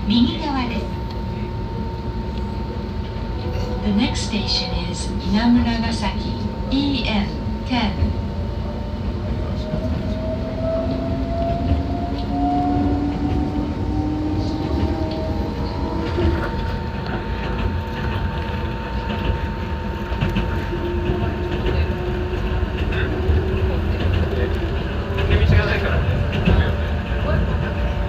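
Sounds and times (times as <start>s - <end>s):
train wheels rumbling on track: 0.0s - 28.0s
rail clicks: 9.3s - 28.0s.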